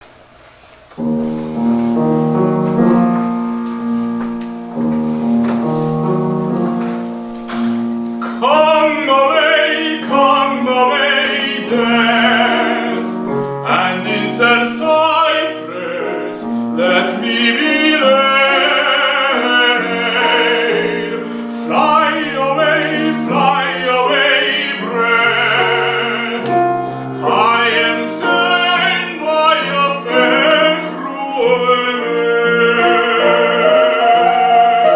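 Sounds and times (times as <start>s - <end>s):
piano accompaniment: 0.0s - 34.9s
tenor singing with vibrato: 7.9s - 34.9s.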